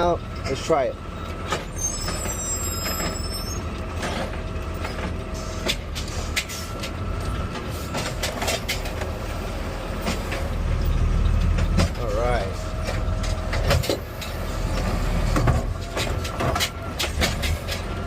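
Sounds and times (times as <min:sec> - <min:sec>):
garbage truck engine running: 0:00.0 - 0:18.0
hydraulic arm whining: 0:00.0 - 0:18.0
clanks and knocks: 0:03.9 - 0:07.0, 0:07.6 - 0:09.1, 0:11.3 - 0:17.9.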